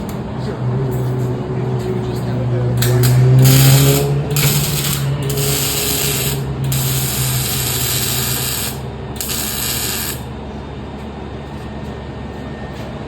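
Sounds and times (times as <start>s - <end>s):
air ratchet hissing bursts: 3.4s - 10.3s.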